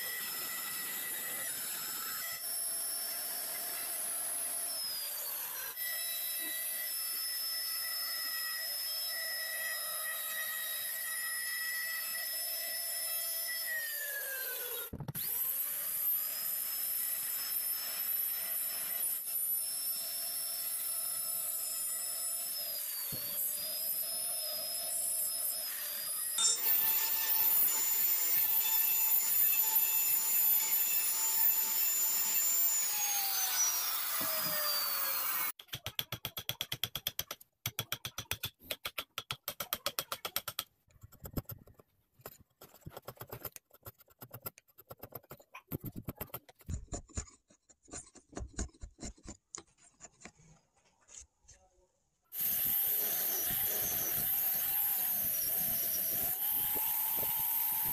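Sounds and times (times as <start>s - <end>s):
chisel scraping wood: 39.8s - 51.3s.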